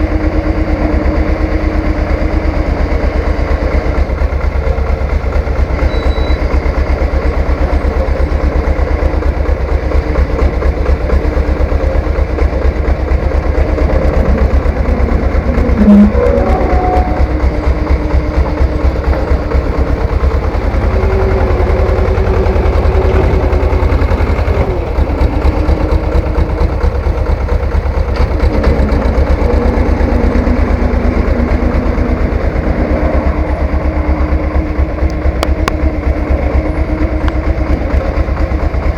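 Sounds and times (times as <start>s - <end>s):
tractor engine running: 0.0s - 38.9s
brief high-pitched sound: 13.7s - 17.5s.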